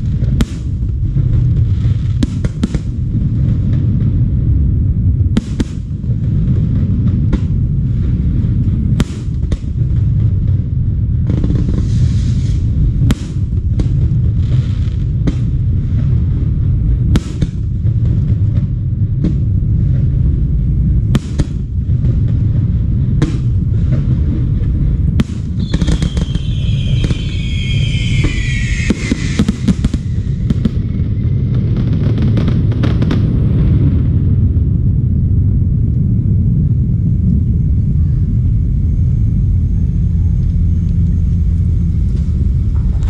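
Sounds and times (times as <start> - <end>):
fireworks bangs: 0.0 - 4.7, 5.3 - 20.4, 21.1 - 34.6
steady low rumble: 0.0 - 43.0
high falling whistle: 25.6 - 32.6.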